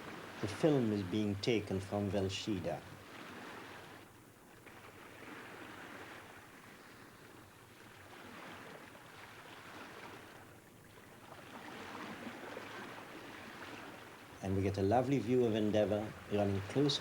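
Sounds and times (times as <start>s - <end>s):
sea waves rushing: 0.0s - 4.0s, 11.3s - 17.0s.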